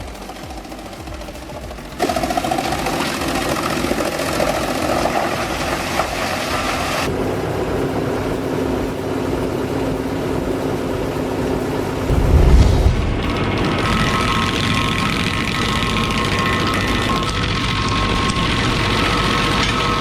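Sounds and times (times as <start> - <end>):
wood chipper shredding: 0.0 - 7.0.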